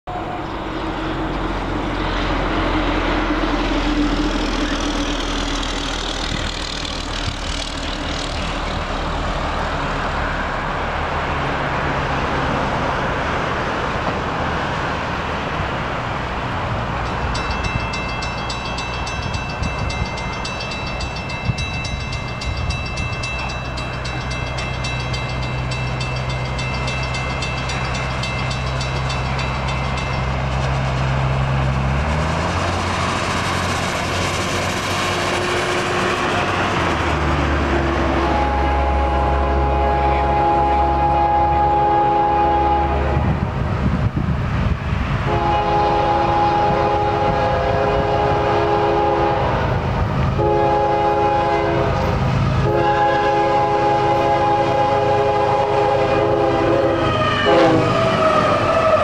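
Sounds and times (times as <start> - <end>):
locomotive engine drone: 0.0 - 59.0
train rushing noise: 0.1 - 59.0
crossing bell ringing: 16.8 - 31.6.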